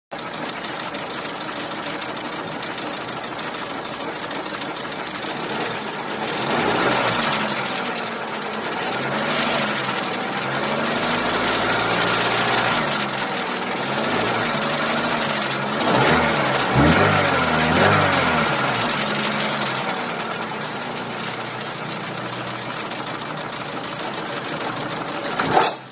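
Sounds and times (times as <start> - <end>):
car engine running: 0.2 - 25.9.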